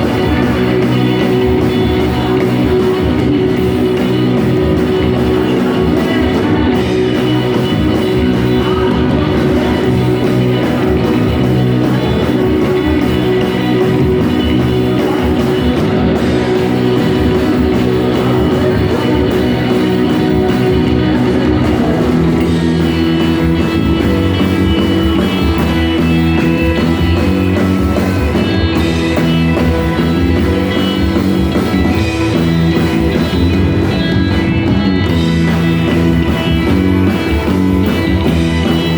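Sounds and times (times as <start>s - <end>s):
drums: 0.0s - 38.9s
electric guitar: 0.0s - 38.9s.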